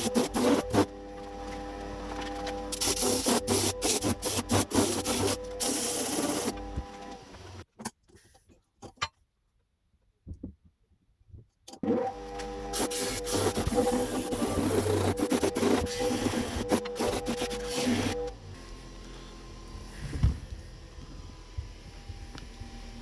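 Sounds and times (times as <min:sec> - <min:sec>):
electric power tool humming: 0:00.0 - 0:07.6, 0:12.0 - 0:23.0
rough scratching on metal: 0:12.7 - 0:18.2.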